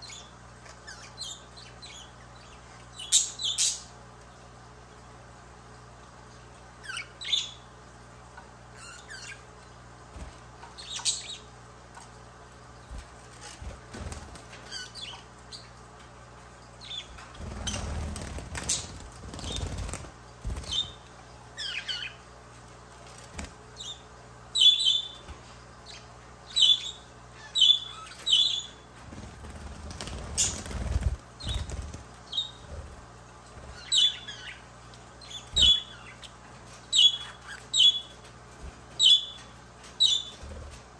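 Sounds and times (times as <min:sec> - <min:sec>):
budgerigars chirping: 0:33.8 - 0:34.6, 0:35.3 - 0:36.3.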